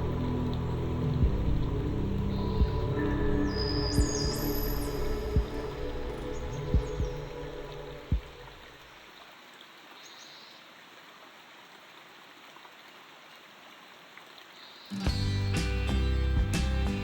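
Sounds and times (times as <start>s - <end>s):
relaxing instrumental music: 0.0s - 8.7s, 15.0s - 17.0s.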